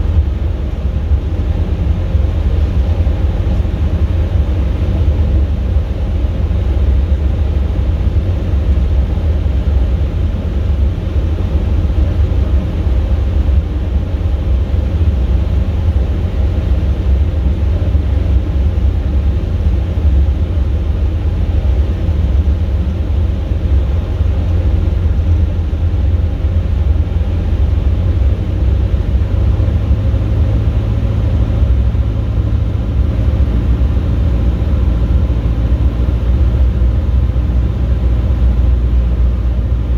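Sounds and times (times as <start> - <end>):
light aircraft engine drone: 0.0 - 39.9.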